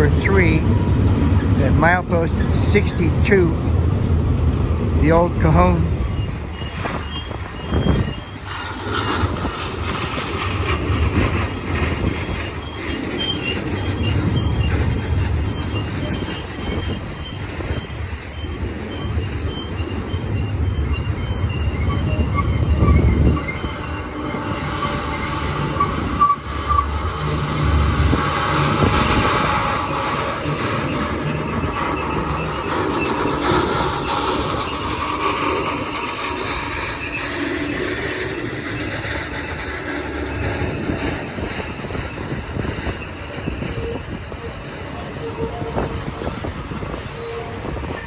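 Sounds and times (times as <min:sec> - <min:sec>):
freight train rumbling on rails: 0:00.0 - 0:48.0
wheels squealing: 0:00.0 - 0:48.0.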